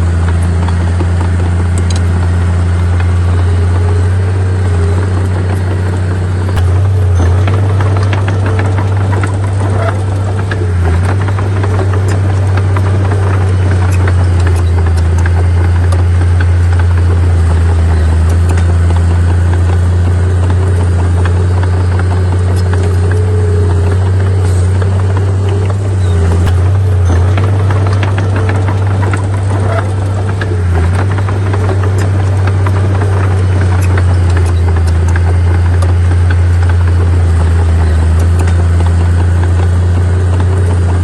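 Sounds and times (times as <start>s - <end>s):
bulldozer engine hum: 0.0s - 41.0s.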